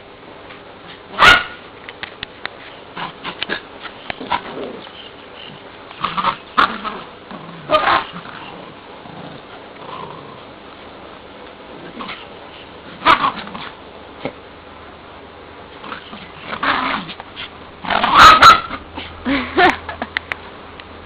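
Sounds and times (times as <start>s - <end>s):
dogs playing and vocalizing: 2.3s - 10.8s, 11.4s - 14.4s.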